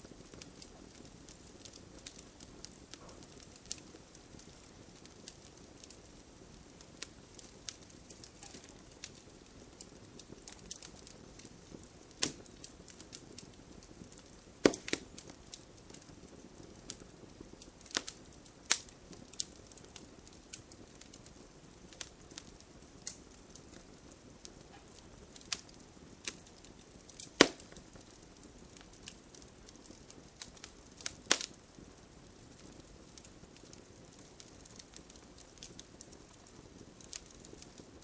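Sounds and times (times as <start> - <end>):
faint steady hiss: 0.0 - 38.0
wood fire crackling: 0.0 - 38.0
sharp pops: 14.6 - 15.1, 27.4 - 27.7.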